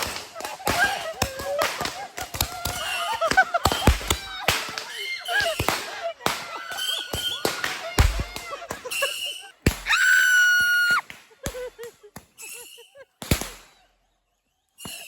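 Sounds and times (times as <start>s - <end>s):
voices shouting: 0.0s - 11.7s
roman candle pops and bangs: 0.0s - 12.6s, 13.2s - 13.8s.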